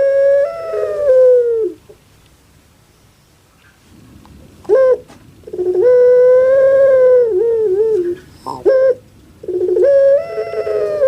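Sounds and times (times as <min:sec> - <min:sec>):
dove cooing: 0:00.0 - 0:02.0, 0:04.7 - 0:11.0.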